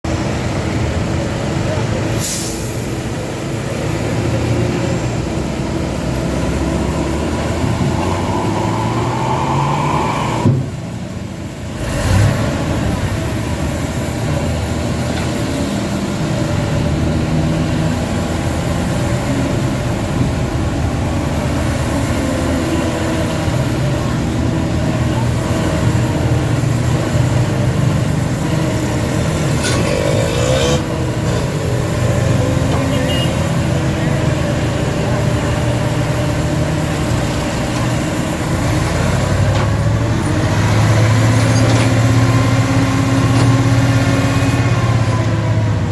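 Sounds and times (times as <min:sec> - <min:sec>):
heavy diesel engine running: 0:02.7 - 0:30.2
rising whine: 0:05.9 - 0:11.6.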